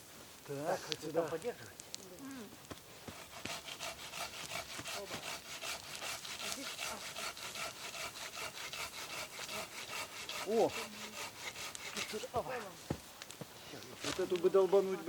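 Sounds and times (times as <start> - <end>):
hand saw cutting a log: 3.1 - 12.4.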